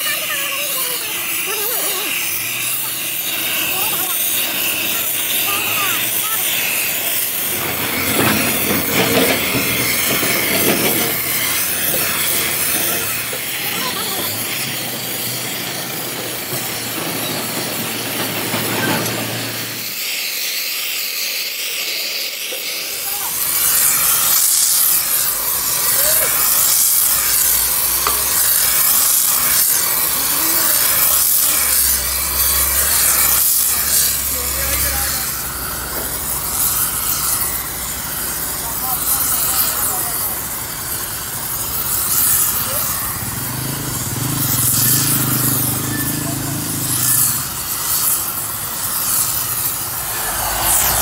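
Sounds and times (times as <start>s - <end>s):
workshop machinery hissing: 0.0s - 51.0s.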